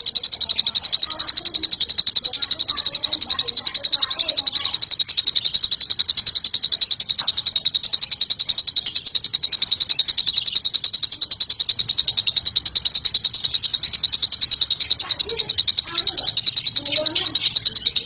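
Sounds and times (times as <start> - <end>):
bird singing rattling trill: 0.0 - 18.0
faint high bird chirps: 0.0 - 18.0.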